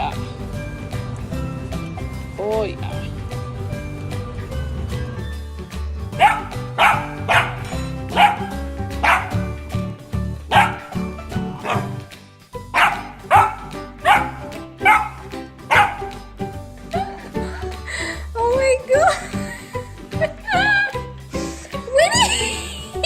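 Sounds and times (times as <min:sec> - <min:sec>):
background music: 0:00.0 - 0:23.0
dog barking: 0:06.2 - 0:09.5, 0:10.5 - 0:11.0, 0:11.6 - 0:12.0, 0:12.7 - 0:16.2.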